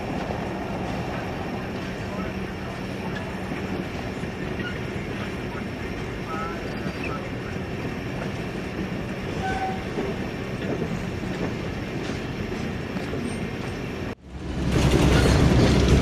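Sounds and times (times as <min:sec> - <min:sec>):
train rumbling on rails: 0:00.0 - 0:16.0
train wheels clickety-clack: 0:07.8 - 0:16.0.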